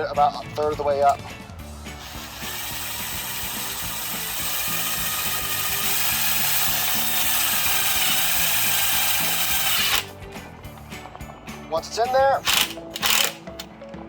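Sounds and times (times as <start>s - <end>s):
power driver driving a screw: 1.9s - 10.1s, 12.4s - 13.7s.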